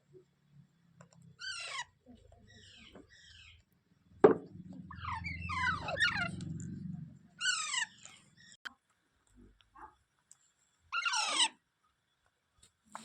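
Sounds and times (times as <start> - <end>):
parrot chirping: 1.3 - 3.6, 4.7 - 8.6, 11.0 - 11.5
parrot harsh squawk: 1.4 - 2.0, 4.9 - 6.4, 7.4 - 8.4, 11.0 - 11.6
low rumble: 4.1 - 8.6.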